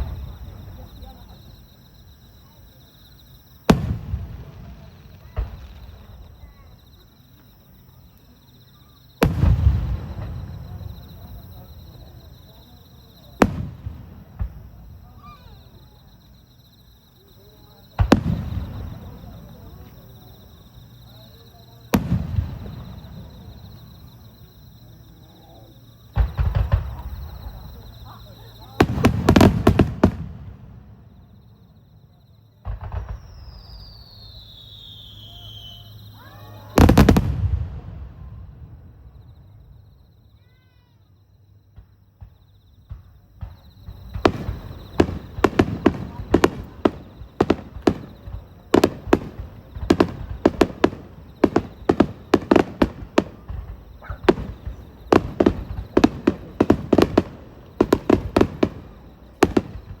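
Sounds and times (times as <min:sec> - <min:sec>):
firework bangs: 0:00.0 - 0:07.7, 0:08.4 - 0:16.4, 0:17.1 - 0:31.4, 0:32.6 - 0:40.0, 0:41.7 - 1:00.0
rapid barrage of firework bursts: 0:03.6 - 0:07.1, 0:09.2 - 0:16.0, 0:17.4 - 0:24.5, 0:26.0 - 0:31.1, 0:32.6 - 0:39.6, 0:41.8 - 1:00.0
falling firework whistle: 0:32.7 - 0:40.8, 0:42.3 - 1:00.0.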